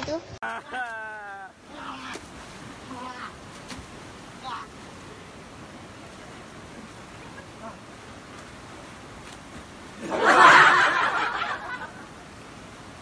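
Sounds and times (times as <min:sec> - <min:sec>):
person laughing: 0:00.4 - 0:01.5.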